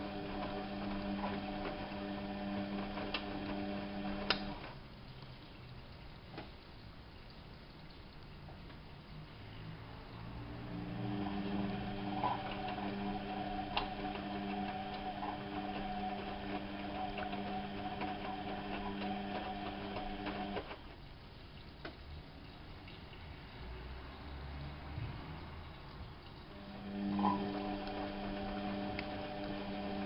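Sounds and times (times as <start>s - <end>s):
washing machine motor hum: 0.0s - 4.8s, 10.2s - 21.3s, 26.3s - 30.0s.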